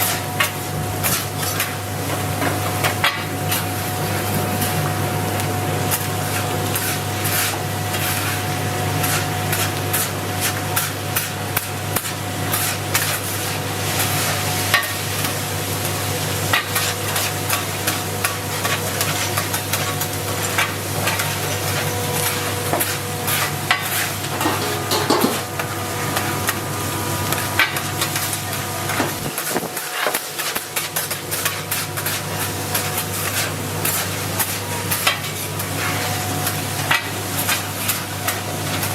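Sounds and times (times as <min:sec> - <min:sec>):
food sizzling in a pan: 0:00.0 - 0:38.9
metal utensil scraping a pan: 0:16.5 - 0:25.4, 0:29.8 - 0:38.4.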